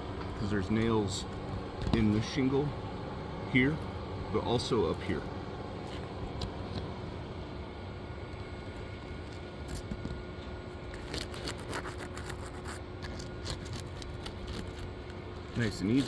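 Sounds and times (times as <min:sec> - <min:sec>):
steady low rumble: 0:00.0 - 0:11.0
scraping and clicks on shingles: 0:10.9 - 0:16.0.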